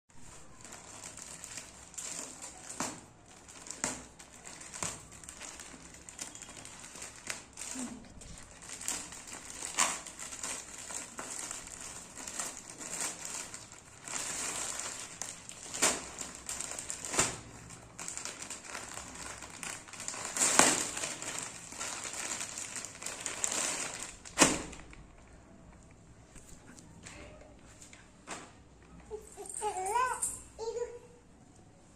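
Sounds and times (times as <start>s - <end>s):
plastic packaging crinkling: 0.2s - 26.6s.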